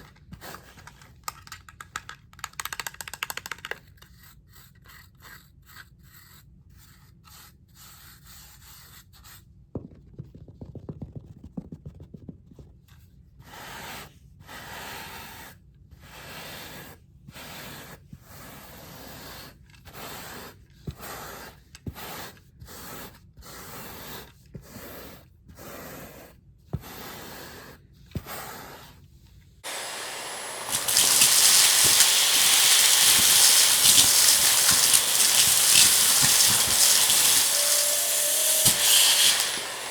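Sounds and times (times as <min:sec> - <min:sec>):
brush scrubbing a rug: 0:29.6 - 0:39.9
vacuum cleaner running: 0:29.6 - 0:39.9.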